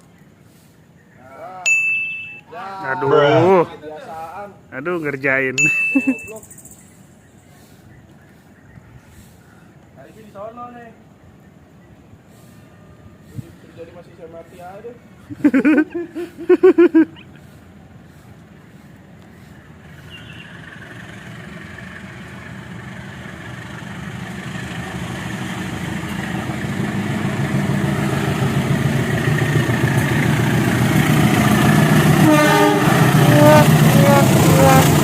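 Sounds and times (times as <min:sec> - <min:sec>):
train rumbling on track: 0:05.6 - 0:35.0.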